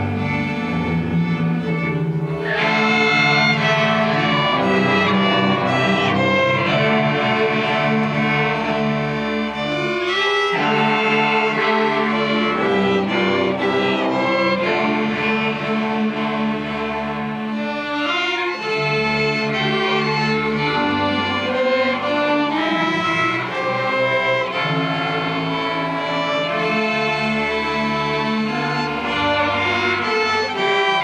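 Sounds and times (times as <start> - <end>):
string orchestra playing: 0.0 - 31.0.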